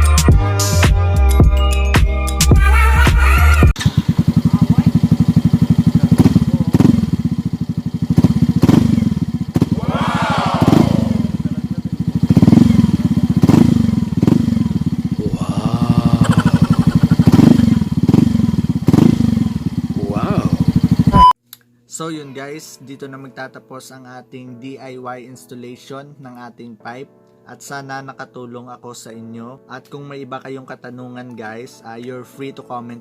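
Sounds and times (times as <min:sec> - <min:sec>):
scooter engine puttering: 0:03.8 - 0:21.2
throttle blips: 0:21.1 - 0:21.3.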